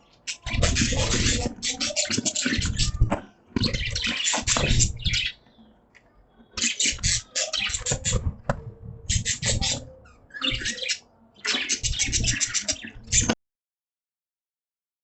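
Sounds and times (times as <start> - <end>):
budgies chattering: 0.0 - 13.4
low knocks and rustles: 7.8 - 9.9.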